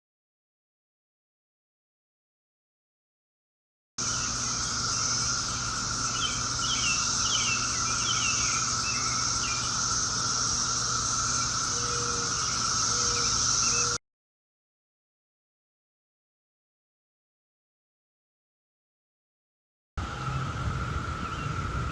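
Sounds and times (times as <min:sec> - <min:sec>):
bird chirping: 0:04.0 - 0:14.0, 0:20.0 - 0:21.9
cicadas buzzing: 0:04.0 - 0:14.0, 0:20.0 - 0:21.9.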